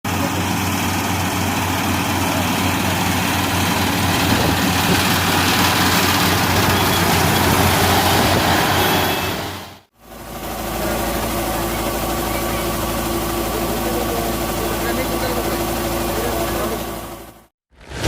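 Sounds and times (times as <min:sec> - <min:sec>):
combine harvester running: 0:00.0 - 0:18.0.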